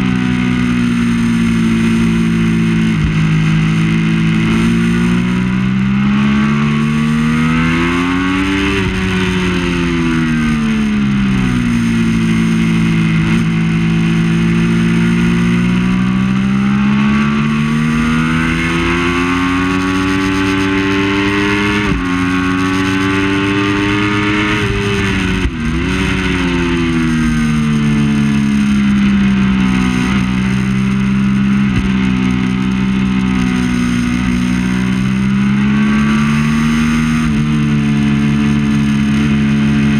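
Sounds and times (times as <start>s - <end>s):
motorcycle engine revving: 0.0s - 39.9s
steady rushing noise: 0.0s - 39.9s.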